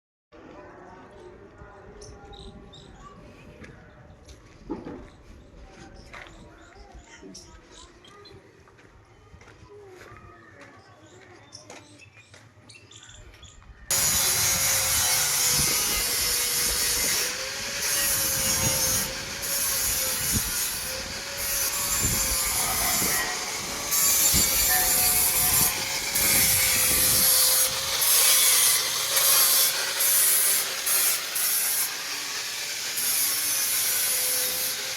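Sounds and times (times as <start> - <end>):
power tool grinding steel: 13.9 - 34.9.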